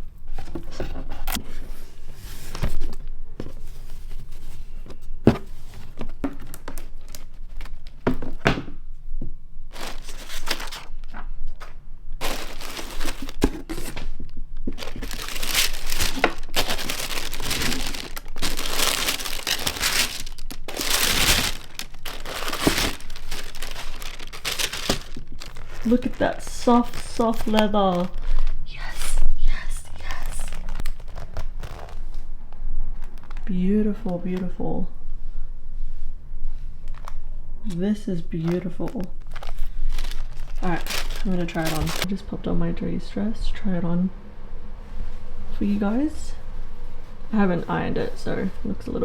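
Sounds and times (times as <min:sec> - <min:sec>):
paper or plastic crinkling: 0:05.4 - 0:08.0, 0:09.7 - 0:32.2, 0:32.9 - 0:33.5, 0:38.4 - 0:42.1
packaging tearing: 0:09.7 - 0:11.0, 0:12.2 - 0:14.1, 0:14.7 - 0:28.6, 0:30.0 - 0:32.1, 0:39.1 - 0:42.1.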